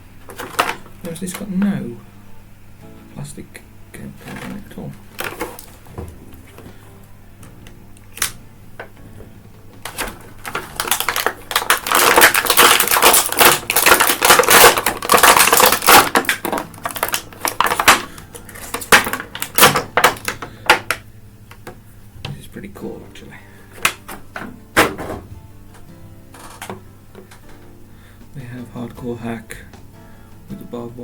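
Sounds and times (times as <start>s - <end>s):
cardboard and plastic crinkling: 0.2s - 1.7s, 4.2s - 6.8s, 9.8s - 21.0s.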